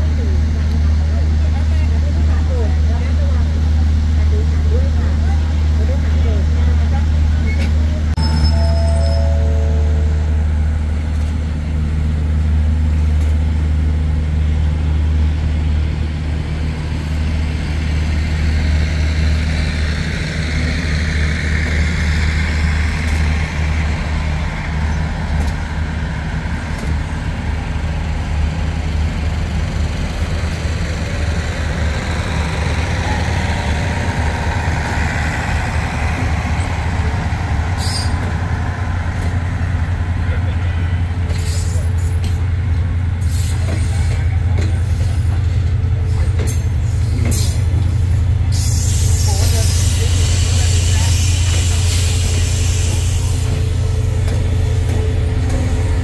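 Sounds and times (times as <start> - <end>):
train wheels rumbling on rails: 0.0 - 56.0
diesel engine drone: 7.9 - 41.3.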